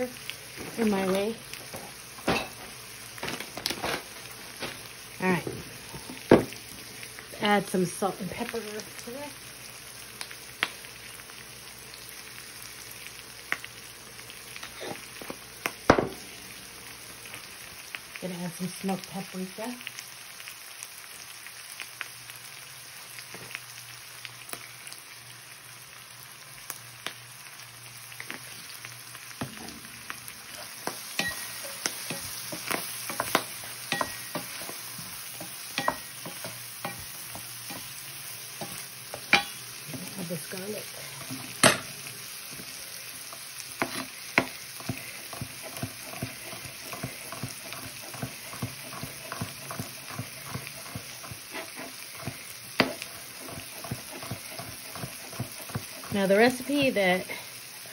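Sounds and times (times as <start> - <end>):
corn sizzling in a skillet: 0.0 - 57.9
wooden spatula scraping a pan: 30.5 - 37.9, 42.5 - 57.4.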